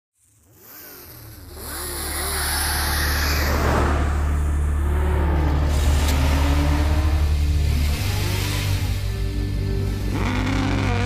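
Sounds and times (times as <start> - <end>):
car engine accelerating hard: 0.4 - 11.0
steady low drone: 2.1 - 11.0.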